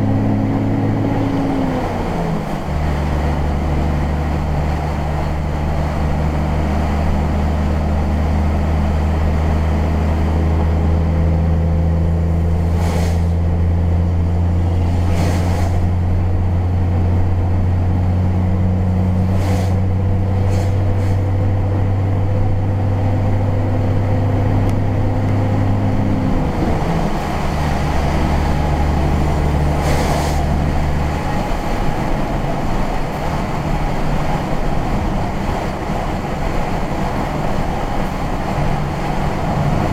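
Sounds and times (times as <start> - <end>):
engine drone inside vehicle: 0.0 - 39.9.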